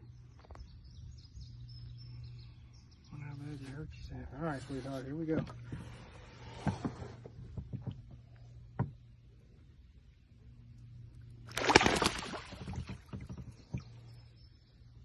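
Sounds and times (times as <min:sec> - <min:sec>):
duck wings flapping: 0:11.5 - 0:13.0
water splashing: 0:11.5 - 0:14.0.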